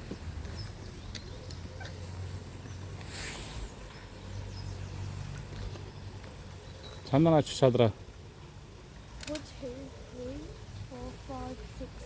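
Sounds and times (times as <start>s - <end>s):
brief hiss: 3.0s - 3.8s.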